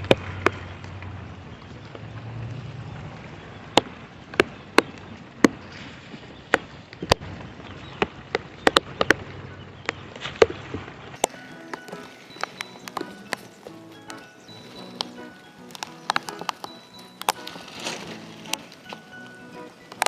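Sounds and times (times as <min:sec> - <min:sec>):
large raindrops tapping: 0:00.0 - 0:05.8, 0:06.4 - 0:20.0
wind: 0:00.0 - 0:20.0
heavy rain: 0:10.9 - 0:20.0.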